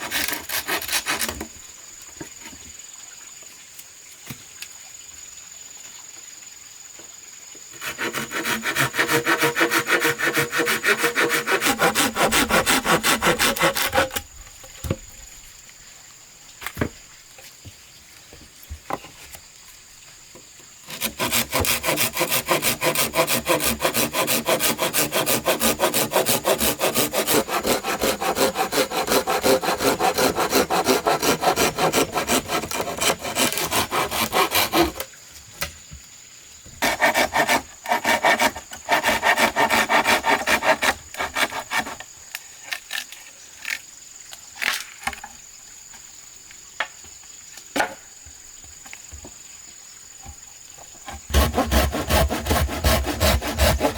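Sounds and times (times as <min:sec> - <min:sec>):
hand saw cutting wood: 0:00.0 - 0:01.6, 0:07.8 - 0:14.3, 0:20.8 - 0:35.1, 0:36.8 - 0:42.1, 0:51.1 - 0:53.9.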